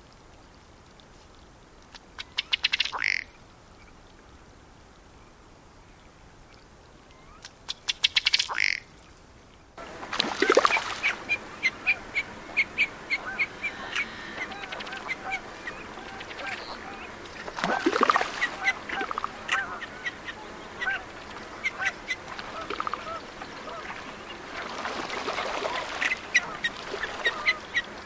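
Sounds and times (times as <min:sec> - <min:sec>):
repeated ticking bird calls: 0:01.9 - 0:04.0, 0:05.8 - 0:09.7, 0:10.6 - 0:24.6
other bird calls: 0:02.2 - 0:03.9, 0:07.1 - 0:08.9, 0:10.4 - 0:28.0
duck ticking and croaking burp: 0:02.3 - 0:03.3, 0:08.4 - 0:08.9.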